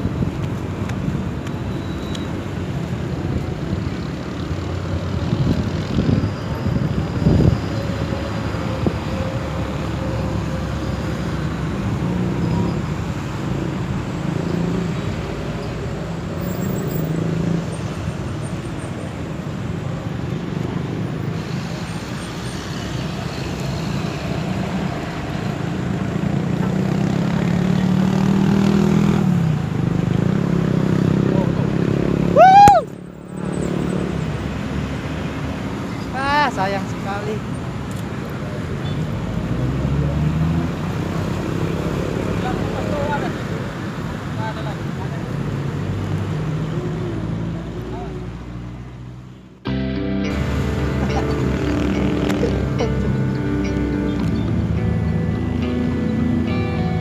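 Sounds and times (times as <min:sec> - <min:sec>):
road traffic hum: 0:00.0 - 0:57.0
vehicle passing: 0:44.9 - 0:57.0.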